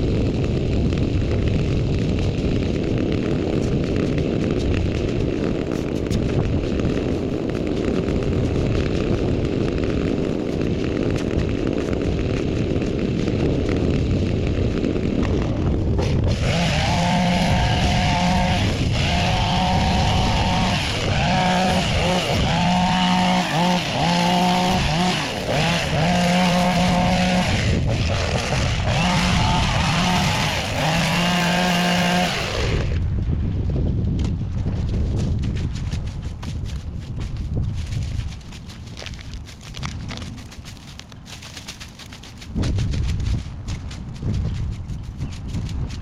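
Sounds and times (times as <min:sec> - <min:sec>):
small gas engine revving: 0:00.0 - 0:33.1.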